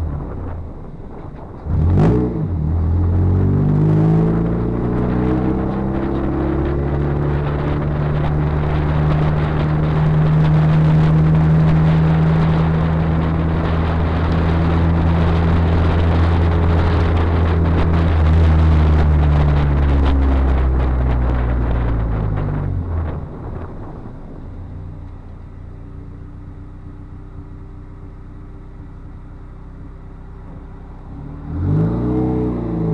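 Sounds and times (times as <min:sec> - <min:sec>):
car engine under load: 0:00.0 - 0:32.9
road and wind noise: 0:00.0 - 0:32.9.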